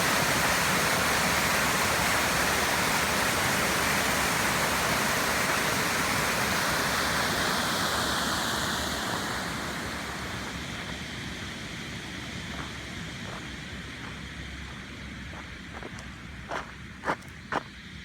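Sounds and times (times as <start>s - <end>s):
waterfall rushing: 0.0s - 13.4s.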